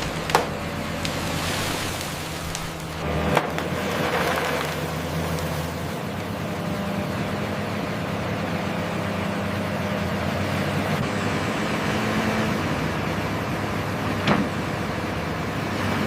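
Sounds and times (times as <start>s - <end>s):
machine engine humming: 0.0s - 3.6s.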